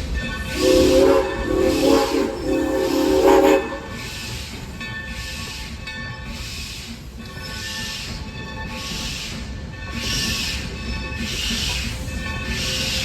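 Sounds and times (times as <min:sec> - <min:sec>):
steam locomotive whistle blasts: 0:00.4 - 0:04.5.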